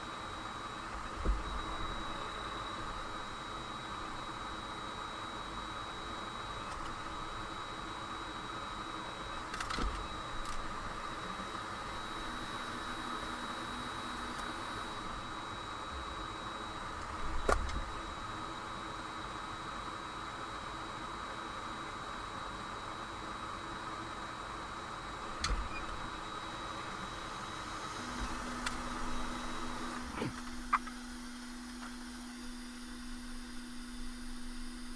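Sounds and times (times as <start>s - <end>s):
faint high whine: 0.0s - 20.1s, 23.8s - 34.9s
fan-like equipment hiss: 25.3s - 34.9s.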